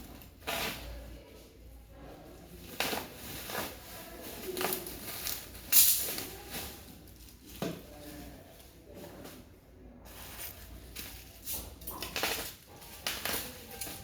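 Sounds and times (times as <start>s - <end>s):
packaging rustling: 10.1s - 14.0s.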